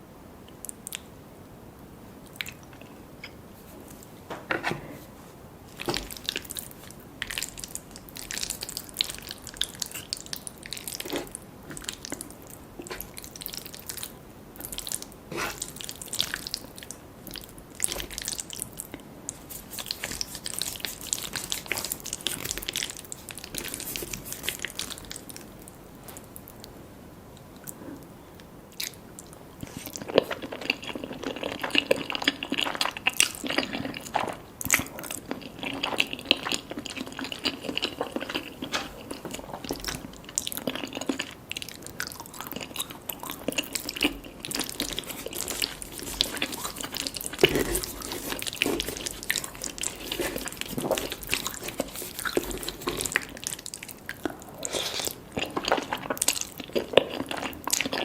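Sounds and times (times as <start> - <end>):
slurpy spaghetti bites: 28.8 - 58.0
crunching fried chicken skin: 29.7 - 58.0.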